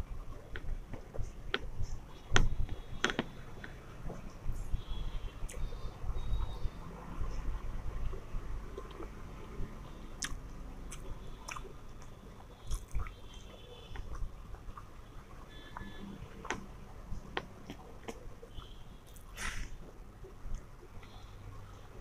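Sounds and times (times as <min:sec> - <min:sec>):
wet clicks of fingers mixing rice: 0:10.1 - 0:21.9
person chewing food: 0:10.2 - 0:14.9.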